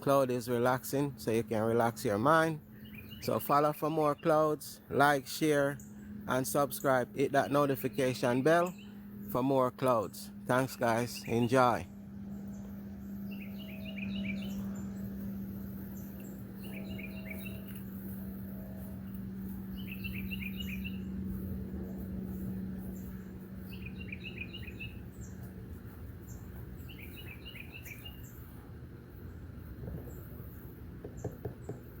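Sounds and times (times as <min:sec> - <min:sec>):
steady low hum: 0:00.0 - 0:32.0
songbird trilling: 0:02.6 - 0:04.4, 0:10.8 - 0:11.9, 0:12.5 - 0:21.5, 0:22.3 - 0:25.4, 0:26.8 - 0:28.4.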